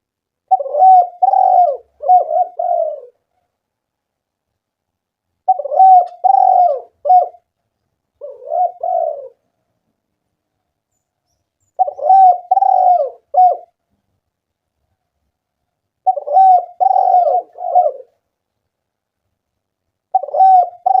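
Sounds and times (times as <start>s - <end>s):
dove cooing: 0.5s - 3.4s, 5.4s - 7.5s, 8.2s - 9.5s, 11.7s - 13.8s, 16.0s - 18.2s, 20.1s - 21.0s.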